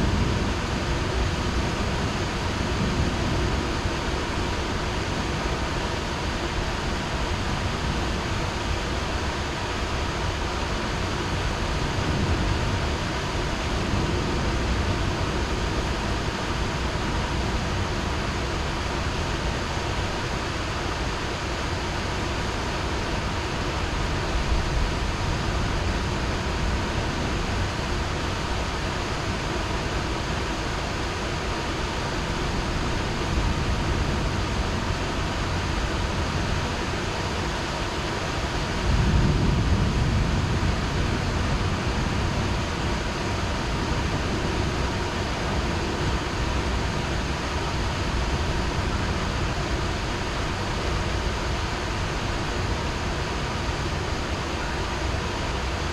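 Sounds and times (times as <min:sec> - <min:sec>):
thunder rumbling: 0:00.0 - 0:10.2, 0:10.8 - 0:19.5, 0:31.8 - 0:54.2
heavy rain falling: 0:00.0 - 0:55.9.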